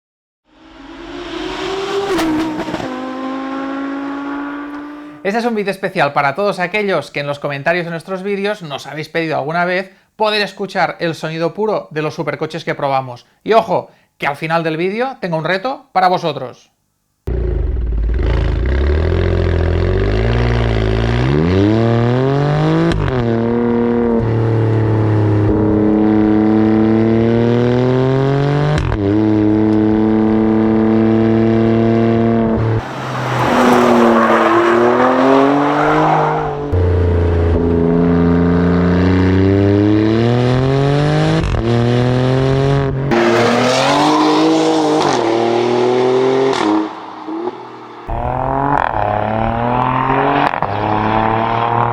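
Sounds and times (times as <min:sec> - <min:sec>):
car engine accelerating hard: 0:00.5 - 0:05.3, 0:17.3 - 0:51.9.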